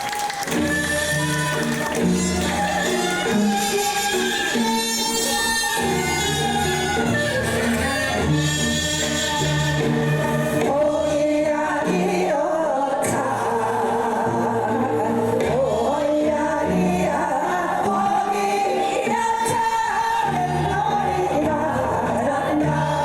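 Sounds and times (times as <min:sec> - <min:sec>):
live band music: 0:00.1 - 0:11.4
person singing: 0:00.5 - 0:23.0.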